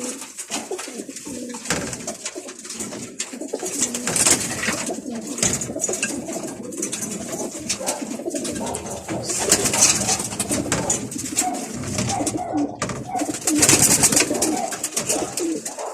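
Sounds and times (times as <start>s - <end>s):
pigeons cooing: 0.0s - 15.9s
rustling bursts: 0.0s - 15.9s.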